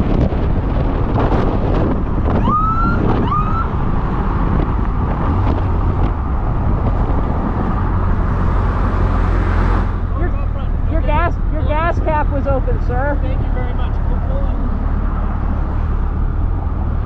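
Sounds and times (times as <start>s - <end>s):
wind and road noise: 0.0s - 17.0s
police siren whoops: 2.4s - 3.7s.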